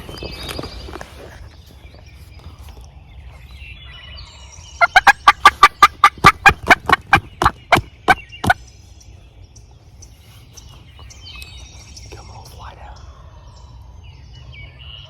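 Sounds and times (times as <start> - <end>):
turkey call yelping: 4.8 - 8.6.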